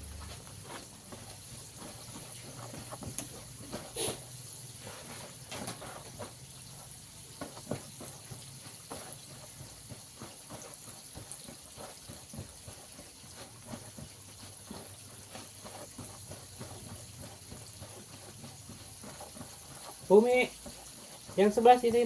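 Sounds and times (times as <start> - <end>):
chicken frying in hot oil: 0.0 - 22.0.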